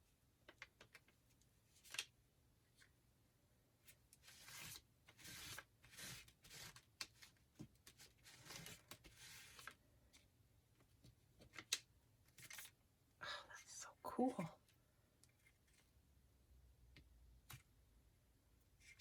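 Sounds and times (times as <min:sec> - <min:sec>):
paper rustling and rubbing: 0:04.2 - 0:09.8.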